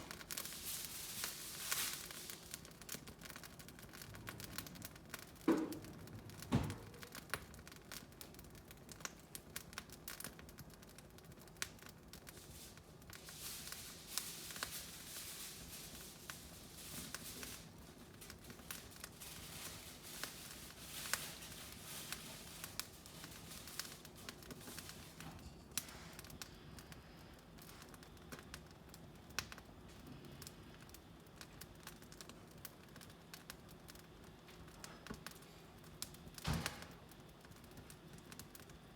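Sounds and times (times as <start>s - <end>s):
hiss of flame: 0.0s - 10.4s, 11.2s - 38.8s
wood fire crackling: 0.0s - 38.9s.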